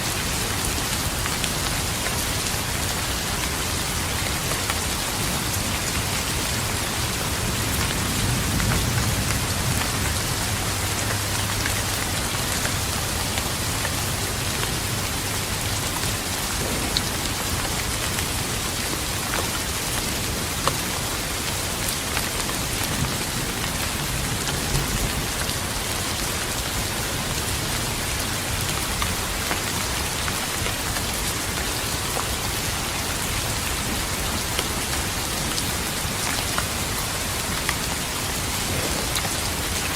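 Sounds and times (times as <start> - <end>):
steady rain falling: 0.0 - 39.9
distant thunder rumble: 7.2 - 14.2.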